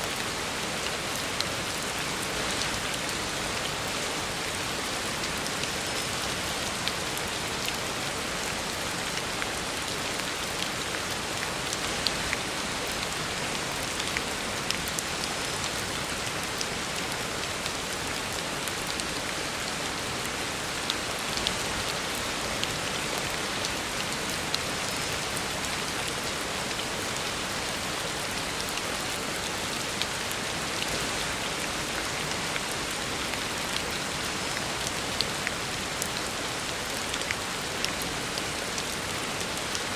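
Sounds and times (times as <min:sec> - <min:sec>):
heavy rain on road: 0:00.0 - 0:39.9.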